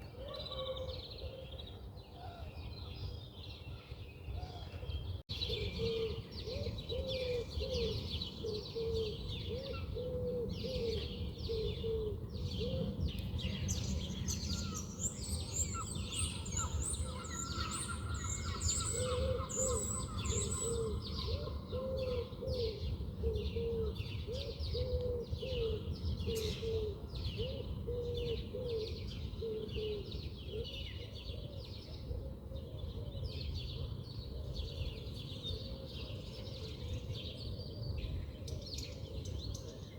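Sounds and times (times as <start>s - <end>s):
birds chirping: 10.6s - 22.3s
low repeated bird notes: 14.5s - 21.4s.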